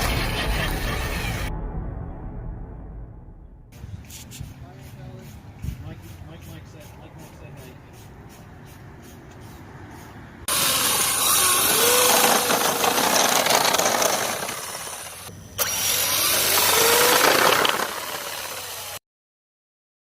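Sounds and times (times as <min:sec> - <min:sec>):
rc truck motor whine: 0:10.5 - 0:19.0.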